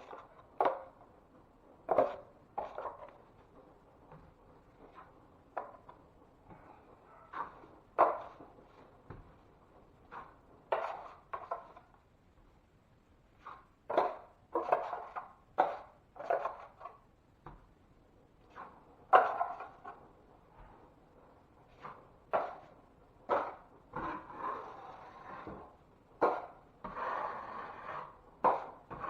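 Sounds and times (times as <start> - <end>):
hand tools scraping and knocking: 0.0 - 11.9, 21.7 - 29.0.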